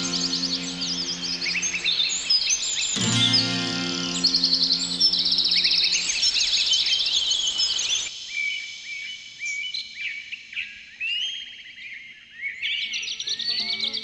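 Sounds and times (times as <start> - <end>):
background hiss: 0.0 - 11.0
songbirds chirping: 0.0 - 14.0.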